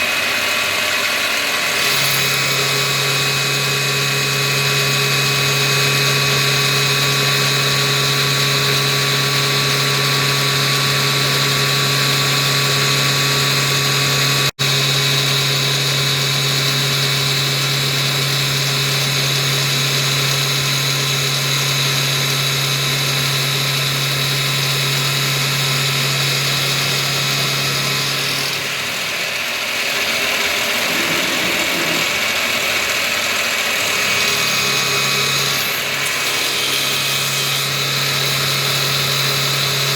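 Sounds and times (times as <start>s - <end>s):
milling machine whine: 0.0s - 39.9s
lower shifting machine sound: 30.1s - 33.1s.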